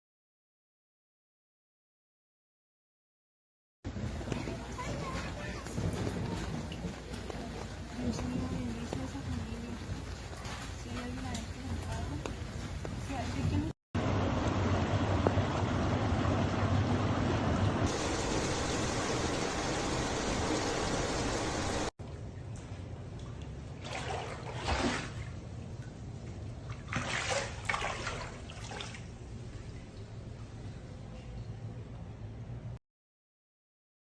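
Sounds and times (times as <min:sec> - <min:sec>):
running water rushing: 0:17.8 - 0:21.9.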